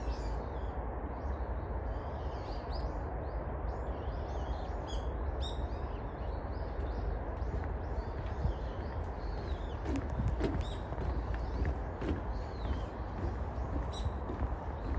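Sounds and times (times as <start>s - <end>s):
low background rumble: 0.0s - 14.9s
small birds chirping: 4.0s - 14.9s.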